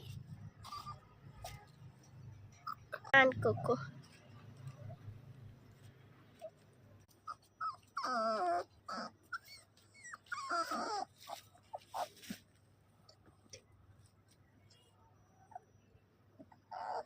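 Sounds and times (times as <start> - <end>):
puppy whining: 0.1 - 3.8, 6.3 - 12.4, 15.4 - 17.0.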